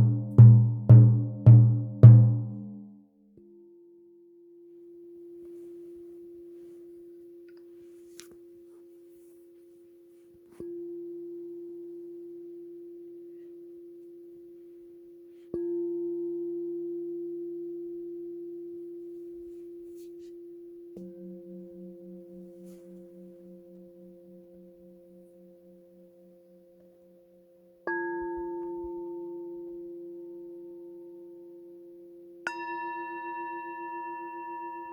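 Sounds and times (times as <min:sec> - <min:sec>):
singing bowl ringing: 0:21.0 - 0:25.6, 0:32.5 - 0:34.9.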